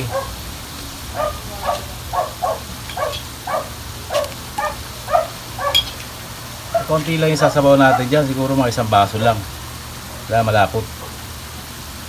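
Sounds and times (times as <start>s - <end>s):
dog barking: 0.0s - 0.4s, 1.1s - 6.0s, 6.7s - 8.3s, 11.0s - 11.2s.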